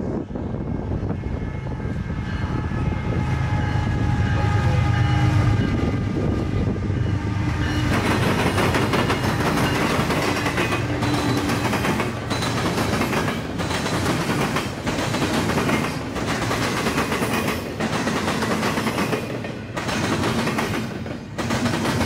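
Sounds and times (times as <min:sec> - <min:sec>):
diesel locomotive engine rumble: 0:00.0 - 0:22.0
steady ringing tones: 0:02.3 - 0:14.2
train wheels clattering on track: 0:05.6 - 0:22.0.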